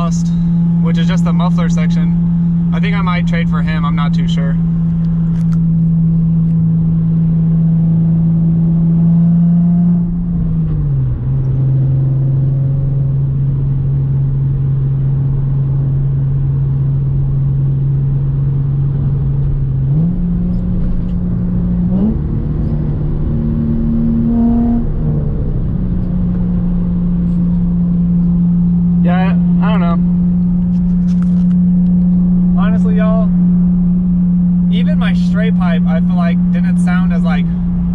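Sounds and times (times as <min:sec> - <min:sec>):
raspy car exhaust drone: 0:00.0 - 0:37.9.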